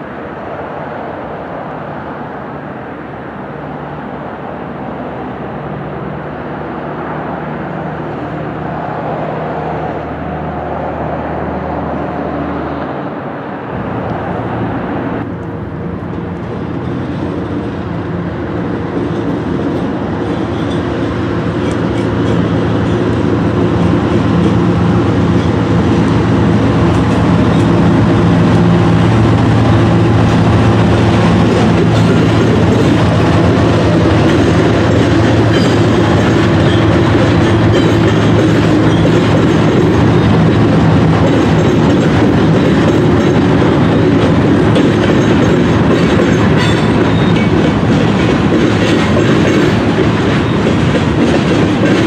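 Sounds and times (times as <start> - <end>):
diesel engine drone: 0.0 - 52.0
train wheels clacking over rail joints: 15.4 - 52.0.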